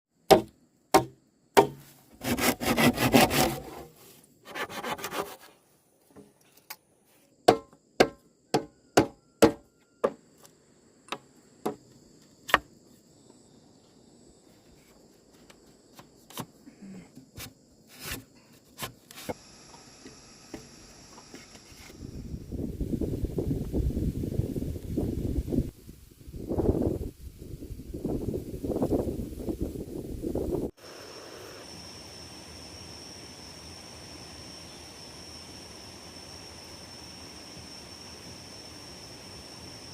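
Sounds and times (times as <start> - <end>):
sharp knocks: 0.3 - 1.8, 7.5 - 10.2
hand saw cutting wood: 1.0 - 5.5.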